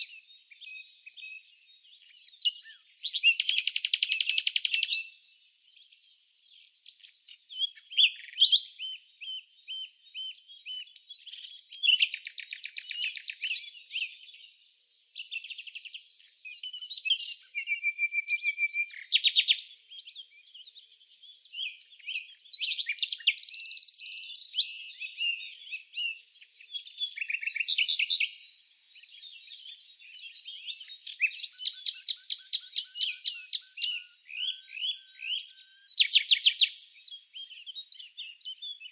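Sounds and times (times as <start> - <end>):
songbirds chirping and singing: 0.0 - 38.9.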